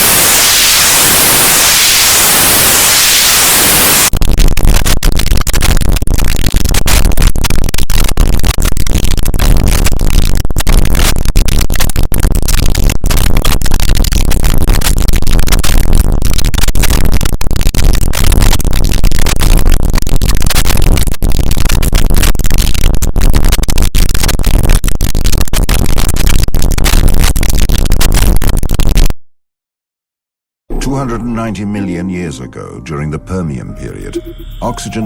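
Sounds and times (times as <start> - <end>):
harsh distorted noise music: 30.7 - 35.0.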